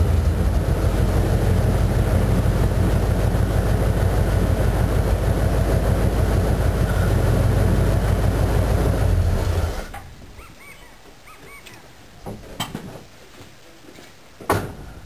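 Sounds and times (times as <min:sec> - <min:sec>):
loud deep engine exhaust note: 0:00.0 - 0:09.9.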